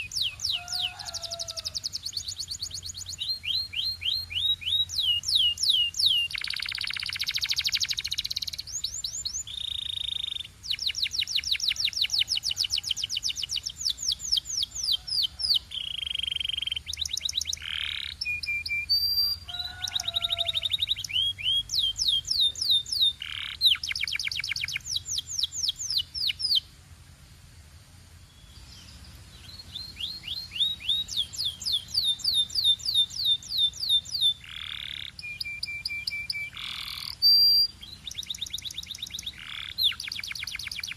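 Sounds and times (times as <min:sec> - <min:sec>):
canary singing: 0:00.0 - 0:26.7, 0:28.3 - 0:40.9.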